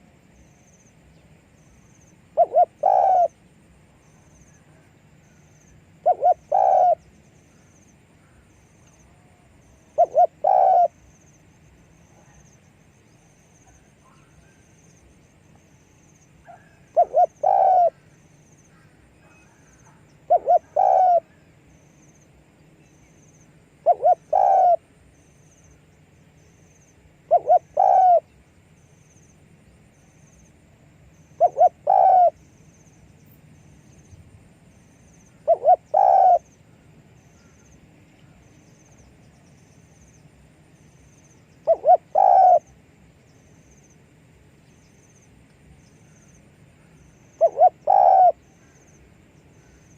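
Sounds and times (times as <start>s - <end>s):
dove cooing: 2.4s - 3.4s, 6.0s - 7.1s, 9.8s - 11.1s, 16.4s - 18.1s, 19.2s - 21.4s, 23.8s - 24.9s, 27.2s - 28.3s, 31.3s - 32.4s, 35.3s - 36.5s, 41.6s - 42.8s, 47.4s - 48.8s.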